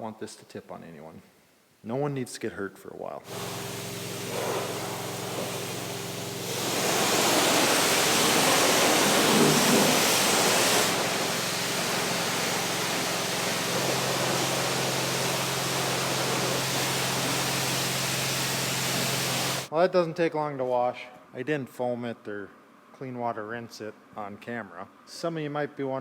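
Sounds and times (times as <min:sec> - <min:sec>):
pressure washer spraying water: 0:03.3 - 0:19.7.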